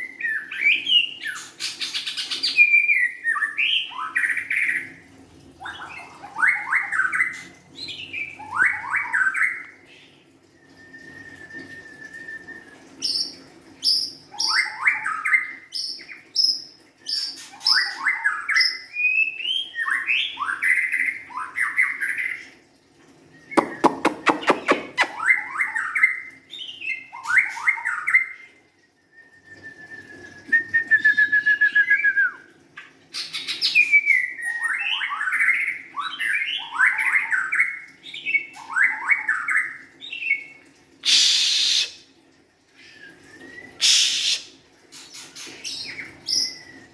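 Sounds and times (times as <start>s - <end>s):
bird singing whistled phrases: 10.6s - 13.3s, 23.4s - 25.7s, 29.0s - 32.5s, 40.2s - 42.0s, 43.0s - 44.5s
bird buzzy trill: 23.6s - 25.2s.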